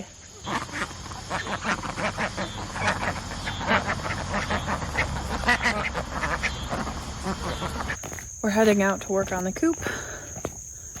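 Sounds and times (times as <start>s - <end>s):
poultry squawking: 0.3s - 8.0s.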